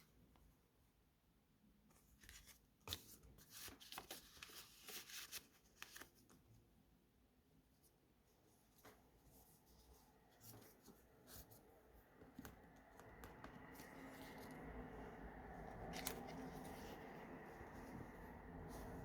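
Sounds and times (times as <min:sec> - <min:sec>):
paper rustling: 0:01.9 - 0:06.4, 0:12.3 - 0:19.0.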